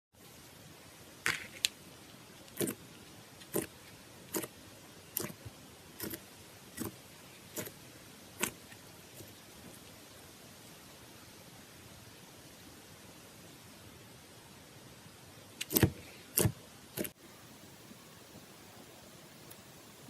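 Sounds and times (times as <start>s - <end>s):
slime popping: 2.4s - 2.8s, 3.4s - 5.4s.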